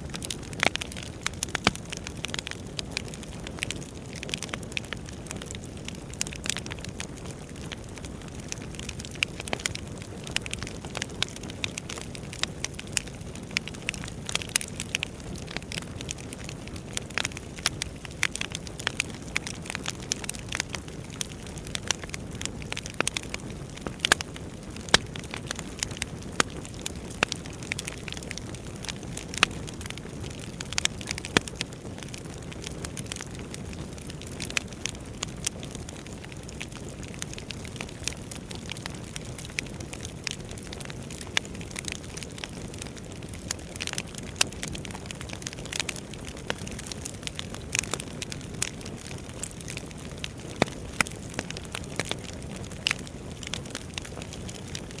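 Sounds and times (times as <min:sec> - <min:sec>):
logs crackling and popping: 0:00.0 - 0:55.0.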